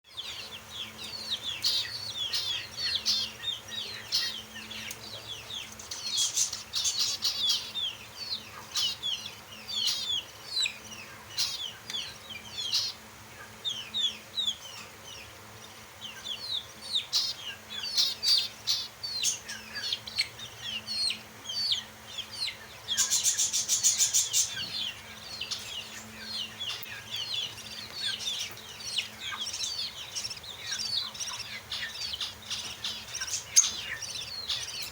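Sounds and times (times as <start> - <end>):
lovebirds chattering: 0.1 - 34.9.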